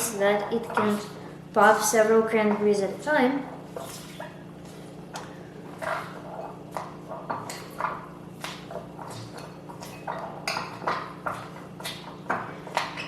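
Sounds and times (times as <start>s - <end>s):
spoon mashing berries in bowl: 3.6s - 13.0s.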